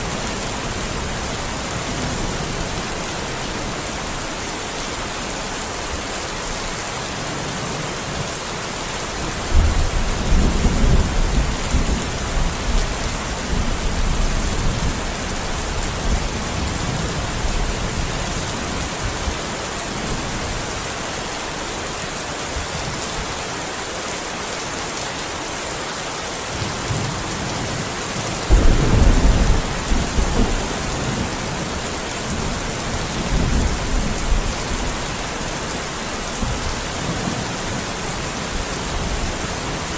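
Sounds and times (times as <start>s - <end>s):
steady rain: 0.0s - 39.9s
thunder rumbling: 28.5s - 35.0s.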